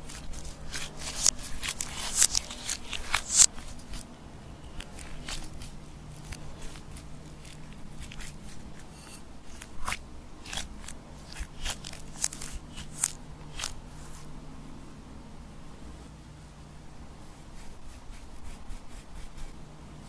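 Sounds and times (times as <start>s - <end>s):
slime squished and stretched: 9.5s - 13.8s.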